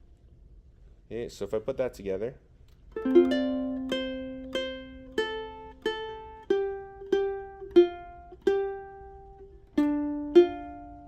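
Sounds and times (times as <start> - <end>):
ukulele picked slowly: 2.8 - 11.0.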